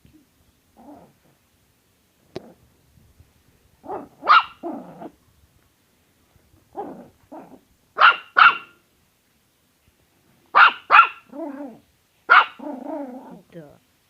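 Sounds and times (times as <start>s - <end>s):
dog barking: 3.8s - 5.1s, 6.8s - 8.8s, 10.5s - 11.4s, 12.3s - 12.7s.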